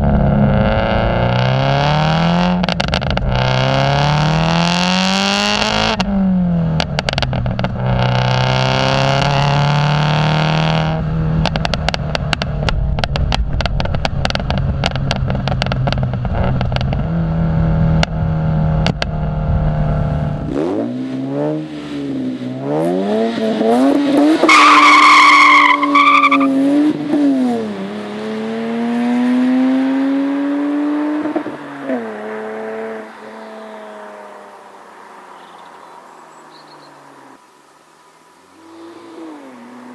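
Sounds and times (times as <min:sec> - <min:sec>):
engine revving: 0:00.0 - 0:34.5, 0:38.6 - 0:39.9
engine with sharp pops: 0:02.5 - 0:04.6, 0:05.5 - 0:08.6, 0:11.4 - 0:17.2, 0:17.8 - 0:20.4
tyre squeal: 0:23.9 - 0:26.6.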